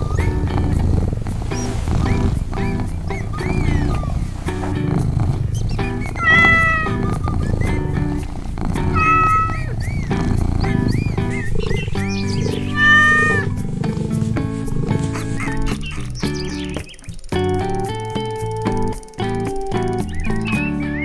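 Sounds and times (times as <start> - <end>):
light music with plucked notes: 0.0 - 21.0
cat meowing: 2.1 - 13.6.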